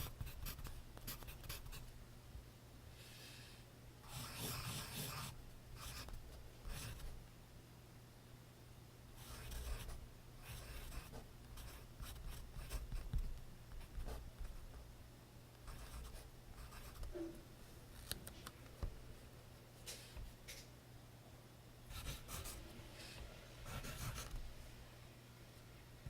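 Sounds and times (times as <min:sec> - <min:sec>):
pencil scratching on paper: 0:00.0 - 0:01.8, 0:04.1 - 0:07.1, 0:09.2 - 0:13.2, 0:15.7 - 0:17.2, 0:21.9 - 0:22.6, 0:23.7 - 0:24.4.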